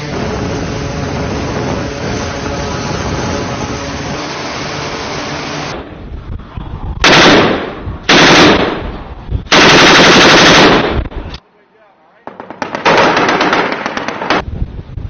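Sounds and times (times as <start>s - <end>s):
steady rumble: 0.0s - 11.4s
automatic gunfire bursts: 7.0s - 8.8s, 9.5s - 11.0s, 12.3s - 14.4s.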